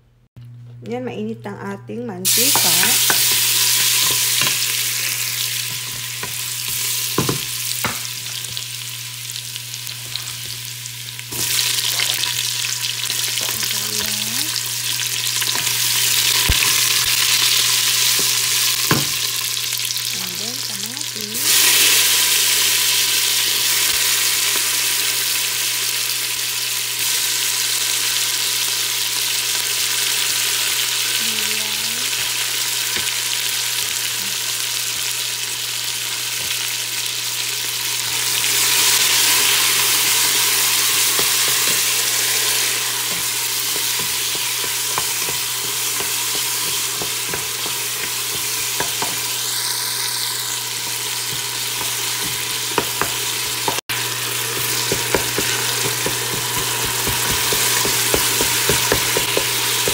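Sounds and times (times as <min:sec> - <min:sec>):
garlic sizzling in hot oil: 0:02.2 - 0:59.9
wooden spoon knocking pot: 0:54.6 - 0:59.9.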